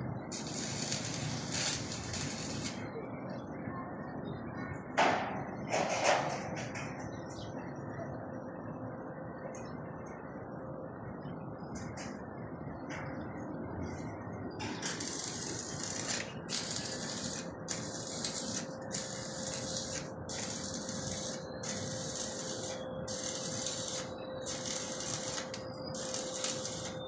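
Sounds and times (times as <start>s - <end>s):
steady hum with tone: 0.0s - 5.0s, 7.5s - 27.0s
rhythmic hissing scrape: 0.3s - 2.8s, 14.8s - 27.0s.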